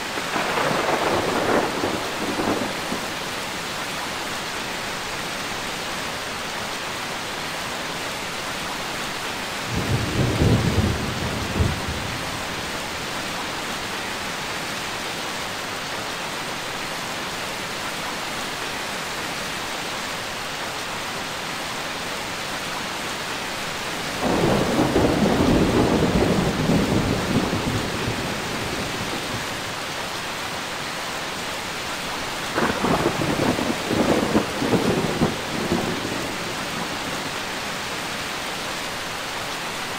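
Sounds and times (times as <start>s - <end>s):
heavy rain hiss: 0.0s - 39.9s
thunder rumbling: 0.1s - 3.2s, 9.7s - 12.8s, 24.2s - 29.7s, 32.5s - 37.1s.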